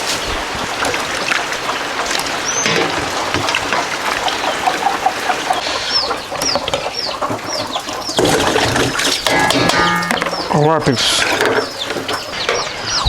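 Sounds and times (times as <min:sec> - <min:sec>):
steady rain: 0:00.0 - 0:08.2
chicks peeping: 0:00.0 - 0:13.0.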